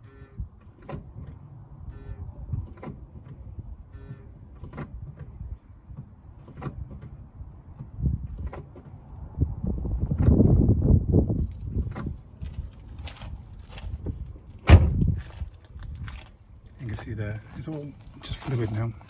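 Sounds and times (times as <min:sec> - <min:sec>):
short squeaks: 0:01.8 - 0:03.0, 0:03.8 - 0:05.6.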